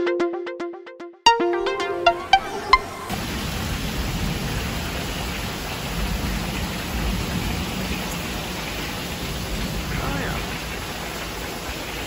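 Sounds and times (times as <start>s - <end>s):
deep thunder rumble: 3.1s - 12.0s
heavy rain pouring: 3.1s - 12.0s.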